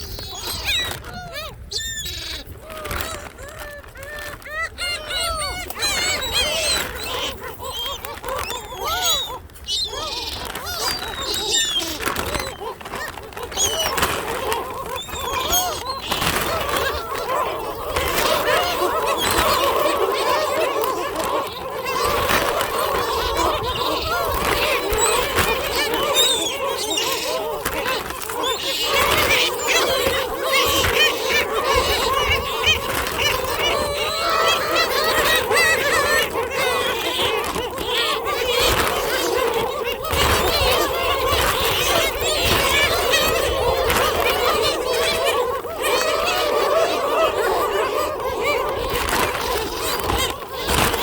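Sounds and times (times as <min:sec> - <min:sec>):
gulls squabbling: 0:00.0 - 0:51.0.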